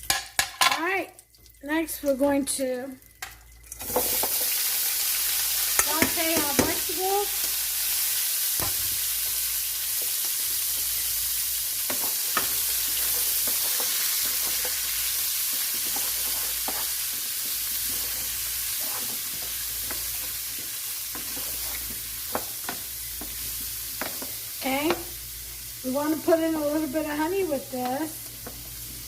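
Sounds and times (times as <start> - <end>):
vegetables sizzling in a pan: 0.0 - 29.0.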